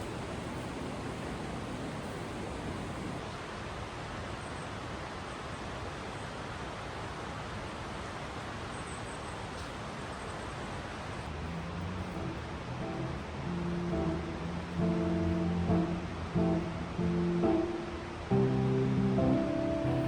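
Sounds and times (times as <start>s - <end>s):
creek water rushing: 9.8s - 20.0s.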